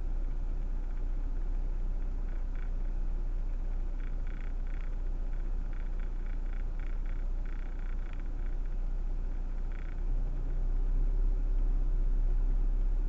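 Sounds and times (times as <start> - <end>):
car cabin low rumble: 0.0 - 13.0
short rattling ticks: 2.0 - 2.9, 3.7 - 8.8, 9.5 - 10.0.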